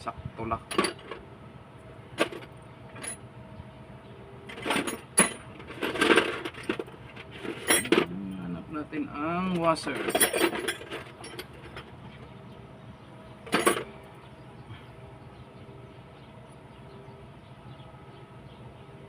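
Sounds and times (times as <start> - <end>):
steady low hum: 0.0 - 19.0
metallic clatter: 4.5 - 8.1, 9.5 - 12.1, 13.5 - 14.0
small metal parts clinking: 4.5 - 8.1, 9.5 - 12.0, 13.5 - 13.9.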